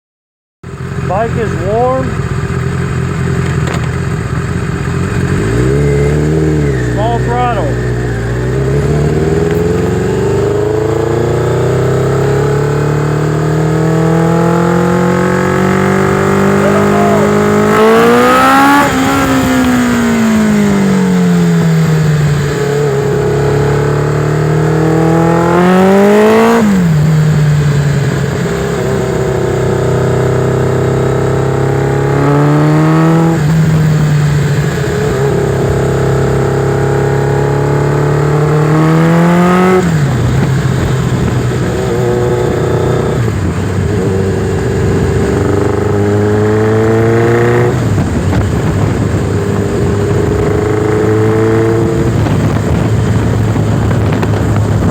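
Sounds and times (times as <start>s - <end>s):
motorcycle engine revving: 0.6s - 54.9s.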